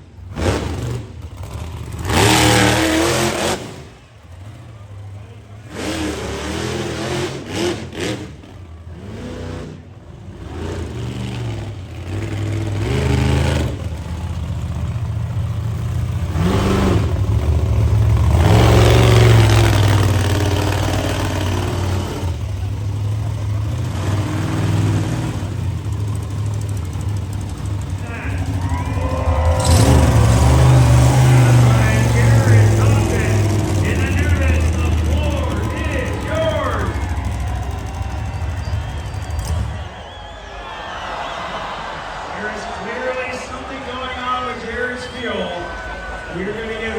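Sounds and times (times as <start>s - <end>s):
truck engine revving: 0.0s - 46.9s.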